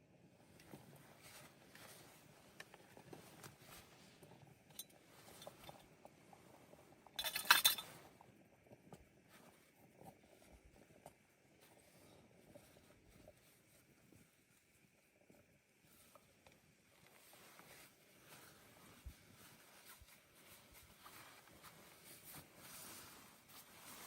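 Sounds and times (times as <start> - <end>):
clinking clatter: 7.1 - 8.1.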